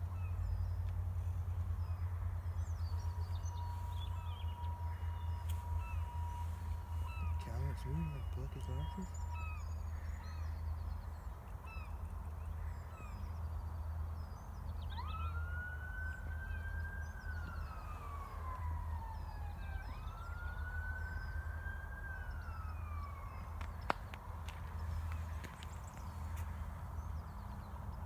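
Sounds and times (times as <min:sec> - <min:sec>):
steady low rumble: 0:00.0 - 0:14.8
small birds chirping: 0:00.0 - 0:28.0
emergency siren wailing: 0:02.7 - 0:09.9, 0:14.8 - 0:23.8.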